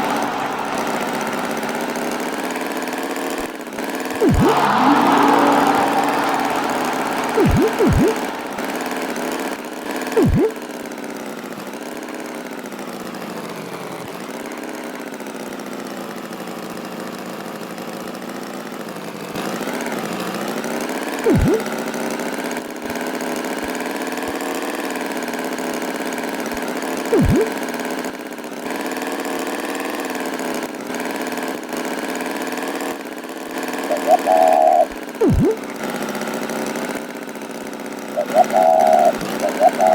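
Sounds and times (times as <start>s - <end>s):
cartoon tractor engine: 0.0s - 10.8s, 21.2s - 22.0s, 27.0s - 27.8s, 33.6s - 36.9s, 37.8s - 39.9s
loud swooping blips: 4.2s - 9.3s, 10.2s - 10.6s, 21.3s - 21.7s, 27.1s - 27.6s, 33.9s - 35.7s, 38.2s - 39.9s.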